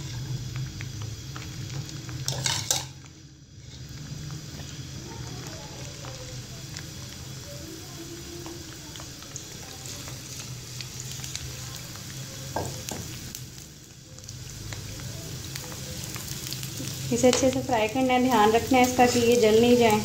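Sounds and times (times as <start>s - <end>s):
vegetables sizzling in hot oil: 0.0s - 20.0s
metal spoon stirring in pan: 2.1s - 6.1s, 15.5s - 20.0s.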